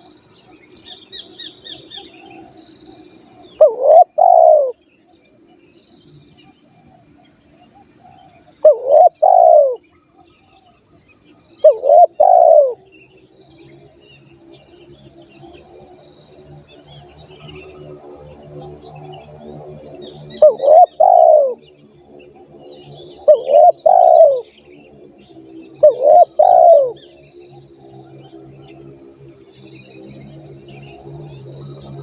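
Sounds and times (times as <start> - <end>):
high insect drone: 0.0 - 32.0
dove cooing: 3.4 - 4.8, 8.1 - 9.8, 11.6 - 12.8, 20.4 - 21.7, 23.2 - 24.6, 25.8 - 27.1.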